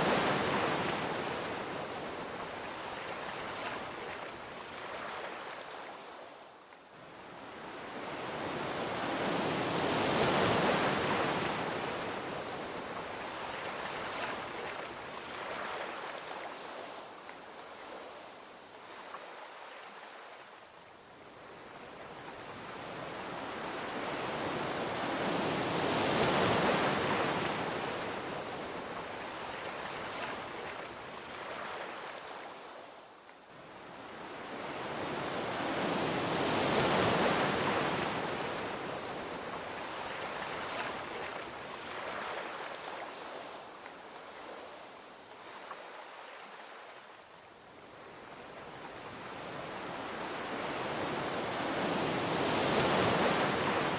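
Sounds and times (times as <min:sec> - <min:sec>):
ocean waves washing onto beach: 0:00.0 - 0:53.9.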